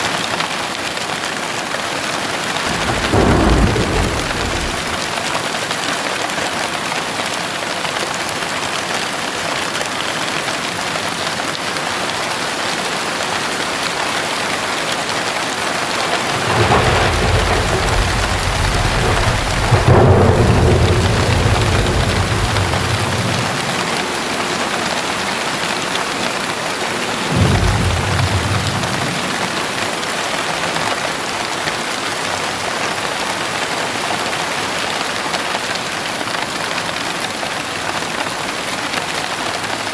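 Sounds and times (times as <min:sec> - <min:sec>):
heavy rain: 0:00.0 - 0:39.9
thunder rumbling: 0:02.5 - 0:05.5, 0:15.5 - 0:30.3.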